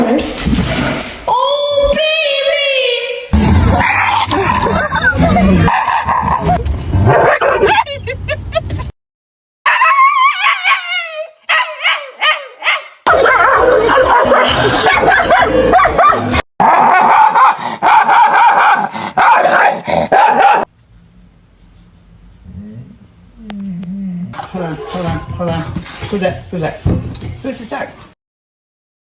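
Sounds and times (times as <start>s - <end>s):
dog barking loudly: 3.4s - 7.8s, 9.7s - 20.7s
dog whining: 3.5s - 6.6s
dog yipping: 3.8s - 8.0s, 9.7s - 20.7s.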